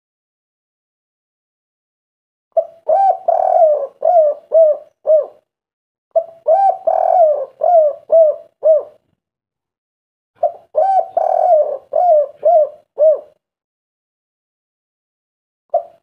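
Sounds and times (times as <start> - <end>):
dove cooing: 2.6 - 5.5, 6.2 - 9.1, 10.4 - 13.4, 15.7 - 16.0.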